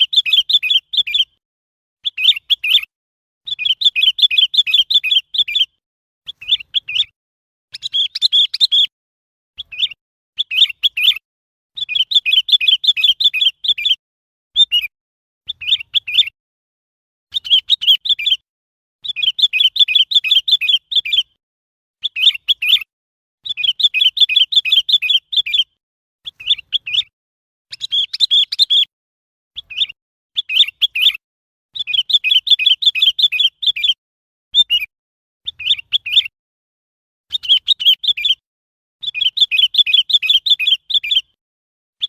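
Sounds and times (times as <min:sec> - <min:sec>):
bulbul rapid chirping: 0:06.3 - 0:08.9, 0:27.7 - 0:28.9.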